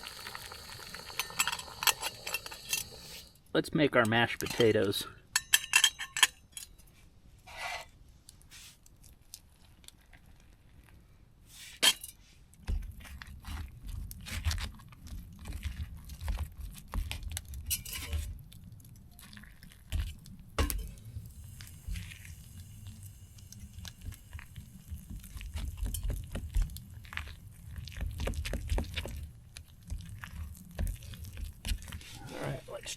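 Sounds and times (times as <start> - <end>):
cookware and utensils clinking: 0.9 - 3.3, 4.0 - 6.7, 17.7 - 18.3, 20.6 - 21.1, 25.0 - 27.2.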